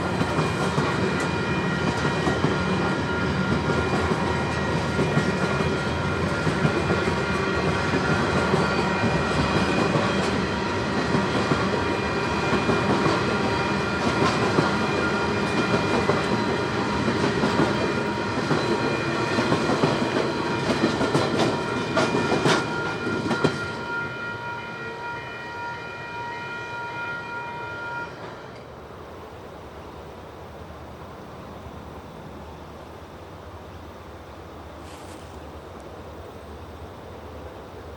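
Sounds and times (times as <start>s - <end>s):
train rumble: 0.0s - 25.0s
train wheels clacking over rail joints: 12.5s - 23.7s.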